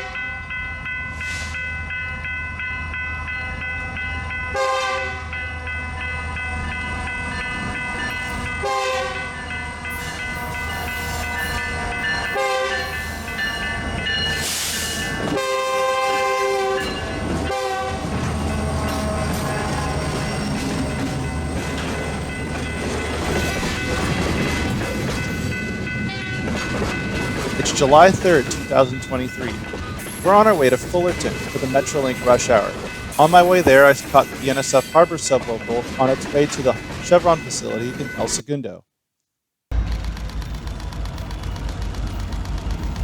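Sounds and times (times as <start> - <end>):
passing train rumble: 0.0 - 38.4, 39.7 - 43.0
locomotive horn blasts: 4.5 - 6.7, 8.3 - 13.5, 15.3 - 21.0.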